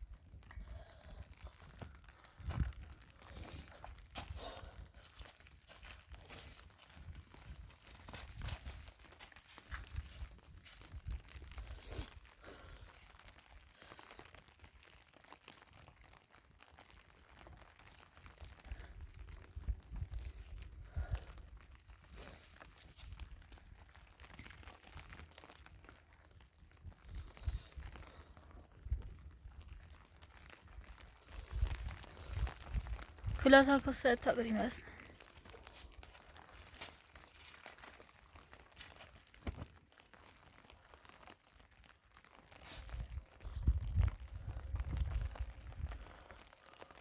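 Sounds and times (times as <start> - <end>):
wind rumbling on microphone: 0.0 - 5.2, 9.6 - 12.9, 18.6 - 22.0, 26.7 - 39.7, 42.8 - 46.4
footsteps crunching through snow: 1.6 - 12.1, 30.2 - 41.0.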